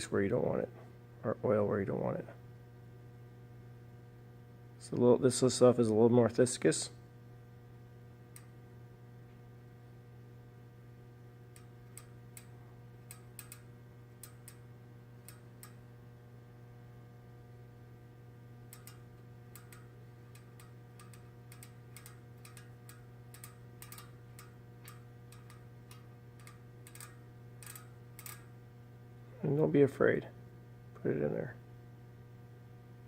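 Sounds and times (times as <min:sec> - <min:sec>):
steady low hum: 0:00.0 - 0:33.0
freehub pawls clicking: 0:18.7 - 0:28.5.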